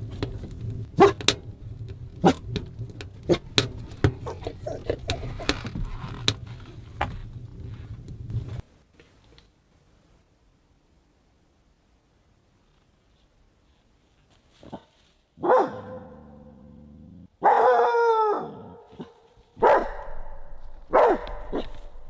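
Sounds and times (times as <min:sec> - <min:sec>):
objects knocking and clicking: 0:00.0 - 0:07.3
steady low rumble: 0:00.0 - 0:08.7, 0:19.6 - 0:22.0.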